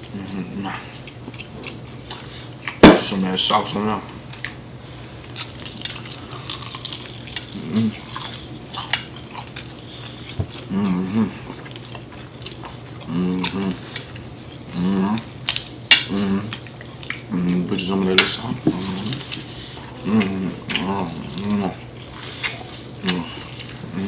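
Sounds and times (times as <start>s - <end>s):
people chewing food: 0.0s - 24.0s
short vocal hums: 10.6s - 11.6s, 16.1s - 16.6s, 19.8s - 21.9s.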